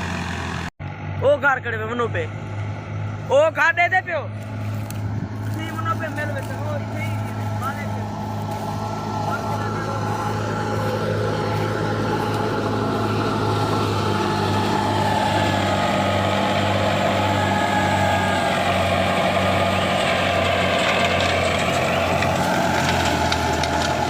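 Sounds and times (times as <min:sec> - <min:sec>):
diesel engine droning: 0:00.0 - 0:24.0
steady whine: 0:04.1 - 0:19.9.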